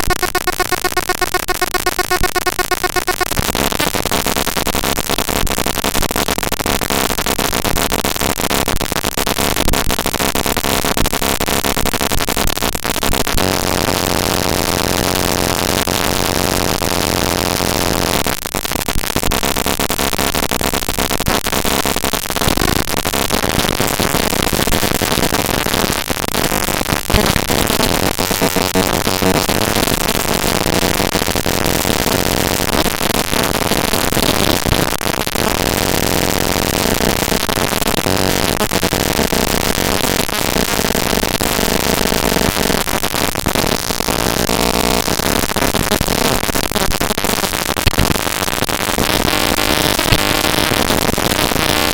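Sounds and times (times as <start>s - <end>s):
harsh digital noise with buzzing tones: 0.0s - 51.9s.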